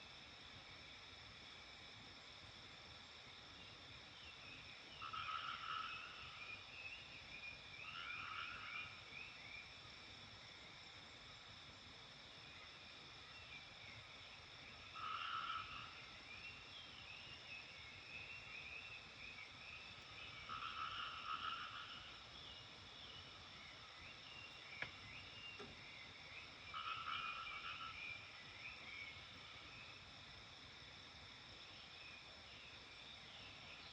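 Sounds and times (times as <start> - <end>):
frog croaking: 4.9 - 6.4, 7.8 - 9.0, 14.8 - 16.1, 20.2 - 22.3, 26.4 - 29.6
birds twittering: 15.0 - 29.9.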